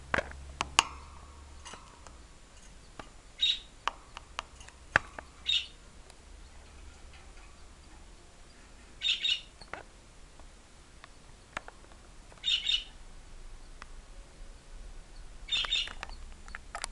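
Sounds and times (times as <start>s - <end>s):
chicks cheeping: 2.1s - 5.8s, 7.6s - 9.7s, 12.4s - 13.0s, 15.1s - 16.2s.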